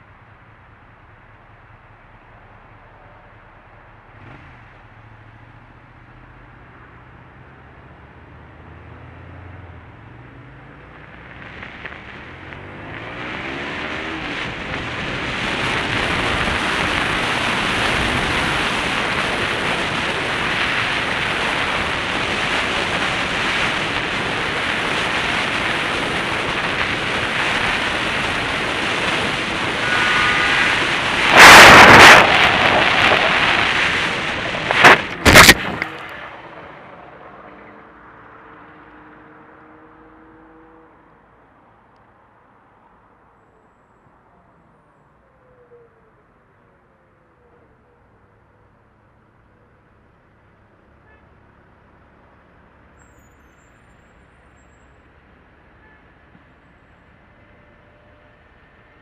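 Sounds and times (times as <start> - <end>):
wind and road noise: 0.0 - 59.0
vehicle engine accelerating: 4.1 - 41.3
loud vehicle crash: 14.2 - 37.7.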